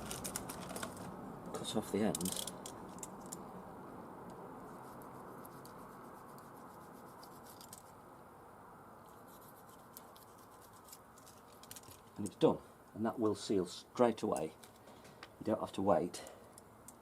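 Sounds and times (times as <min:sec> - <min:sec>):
steady low hiss: 0:00.0 - 0:17.0
faint scratching: 0:04.6 - 0:08.0, 0:09.0 - 0:12.3.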